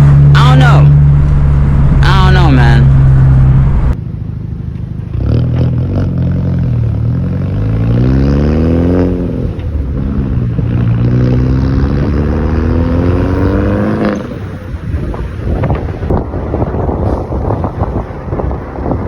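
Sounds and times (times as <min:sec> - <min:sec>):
car engine accelerating hard: 0:00.0 - 0:04.0, 0:04.9 - 0:19.0.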